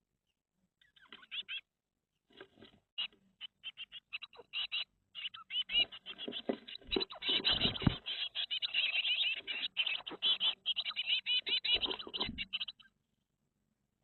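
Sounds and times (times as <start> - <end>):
bird high chirps: 0.8 - 1.7, 3.0 - 13.0.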